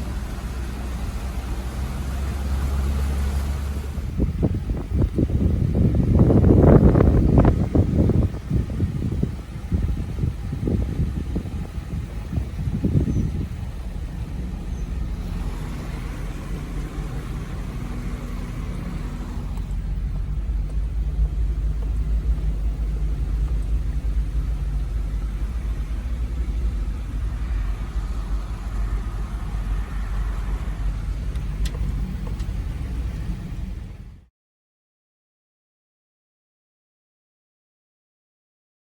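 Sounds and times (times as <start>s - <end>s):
hurricane wind: 0.0s - 34.2s
steady low rumble: 0.0s - 34.3s
heavy rain: 13.5s - 34.1s.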